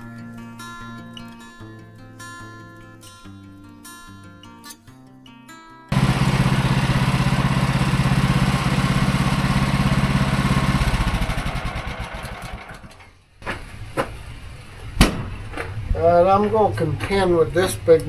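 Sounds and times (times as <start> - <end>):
guitar music: 0.0 - 10.9
small gasoline engine running: 5.9 - 13.0, 13.6 - 18.0
sharp knock: 15.0 - 15.4.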